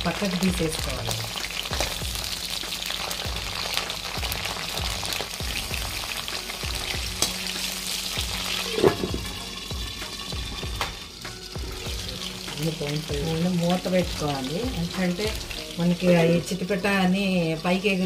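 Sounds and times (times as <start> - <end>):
chillies frying in hot oil: 0.0 - 18.0
steel lid clanking on pan: 8.6 - 9.4.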